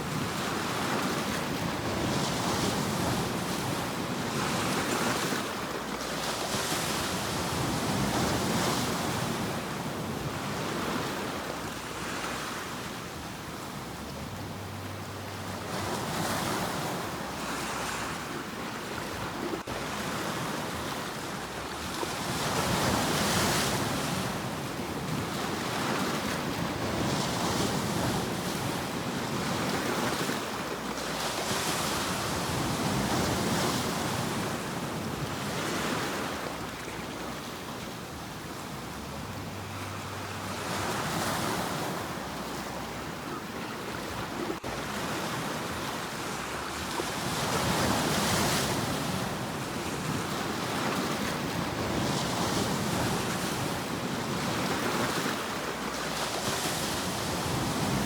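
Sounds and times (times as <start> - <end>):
sea waves breaking on shore: 0.0 - 58.0.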